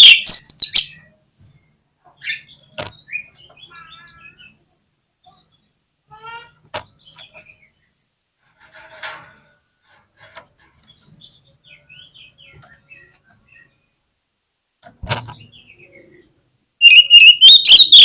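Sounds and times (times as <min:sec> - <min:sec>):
bird singing whistled song: 0:00.0 - 0:01.1, 0:16.8 - 0:18.0.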